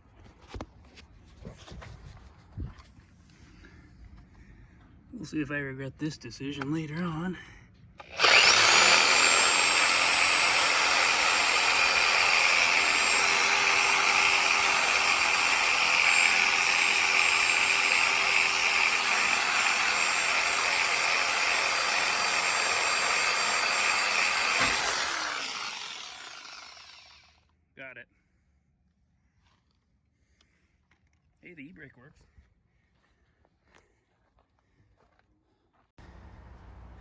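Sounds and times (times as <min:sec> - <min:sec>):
electric power tool whining: 0:08.0 - 0:27.4.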